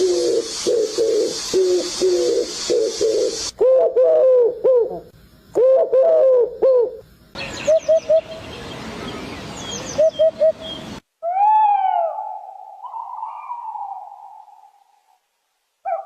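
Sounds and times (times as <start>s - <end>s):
steady hiss: 0.0s - 3.6s
bird hooting: 0.0s - 15.2s.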